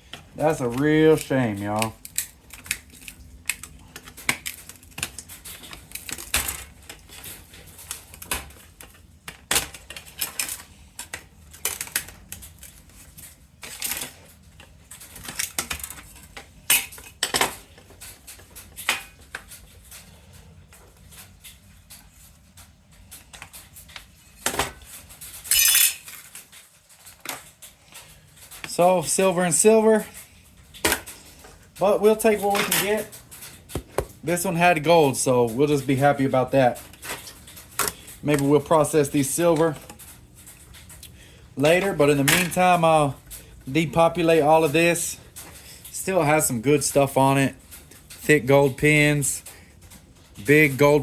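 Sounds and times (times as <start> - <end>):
metal parts clinking on workbench: 25.3 - 26.3.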